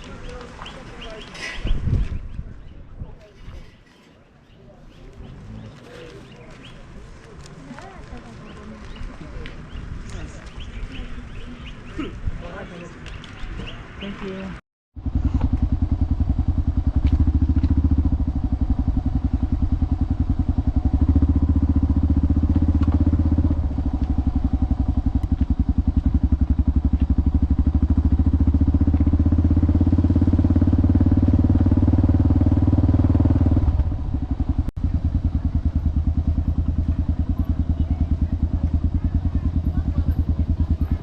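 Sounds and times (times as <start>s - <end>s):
motorcycle engine running: 15.0s - 41.0s.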